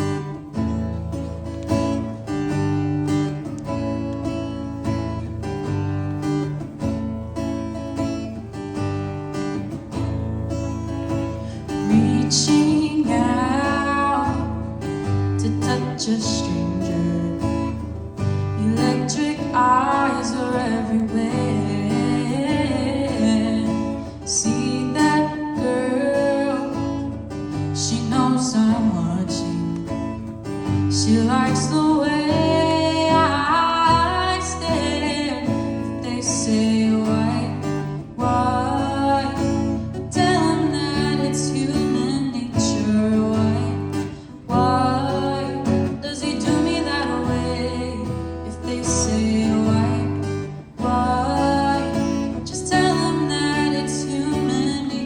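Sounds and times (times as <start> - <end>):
strummed guitar: 0.0 - 55.0
woman singing slow song: 11.1 - 55.0.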